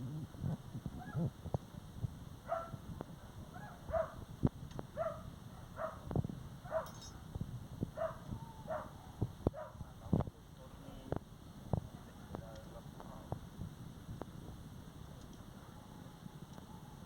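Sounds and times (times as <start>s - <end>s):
dog whimpering and yelping: 1.0s - 1.3s.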